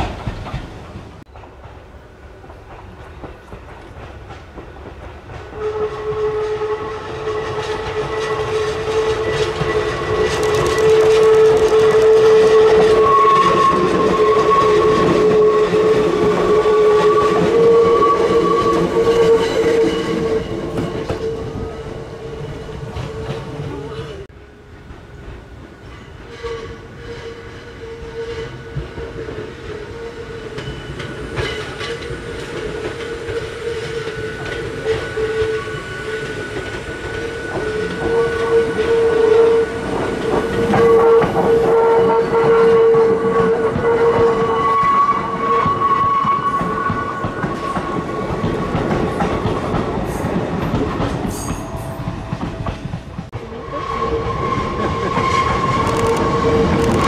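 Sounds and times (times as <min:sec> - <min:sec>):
high train whine: 0:00.0 - 0:57.0
electric train running: 0:02.7 - 0:25.6, 0:28.6 - 0:57.0.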